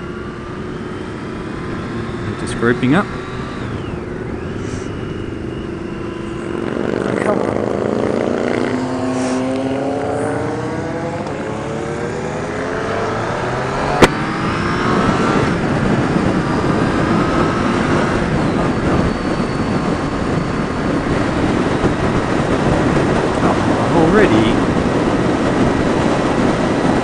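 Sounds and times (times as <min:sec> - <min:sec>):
motorcycle engine: 0:00.0 - 0:27.0
wind rush: 0:00.0 - 0:27.0.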